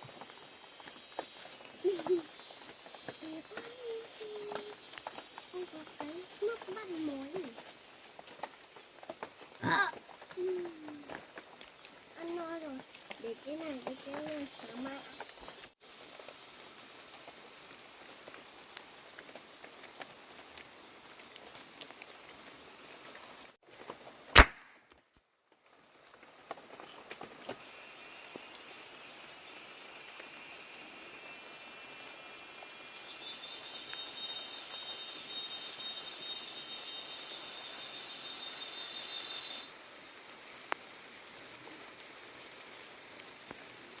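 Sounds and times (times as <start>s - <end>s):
insects chirping: 0.0s - 24.4s, 25.0s - 44.0s.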